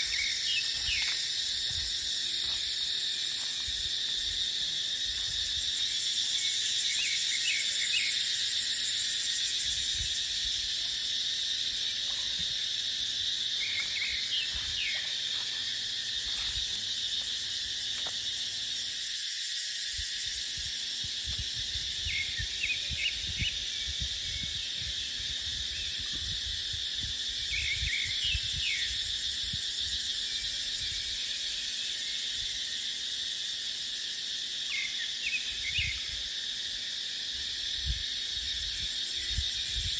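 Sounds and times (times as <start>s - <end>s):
cicadas droning: 0.0s - 39.9s
wind on microphone: 9.6s - 10.7s, 20.0s - 30.0s, 37.7s - 39.9s.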